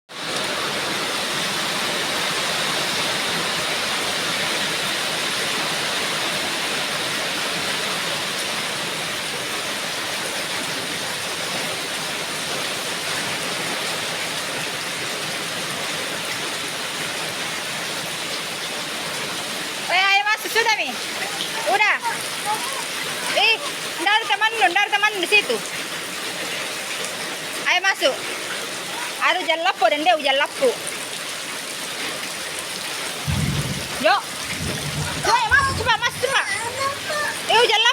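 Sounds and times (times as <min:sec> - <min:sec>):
heavy rain falling: 0:00.1 - 0:37.9
raindrop ticks: 0:33.2 - 0:37.9.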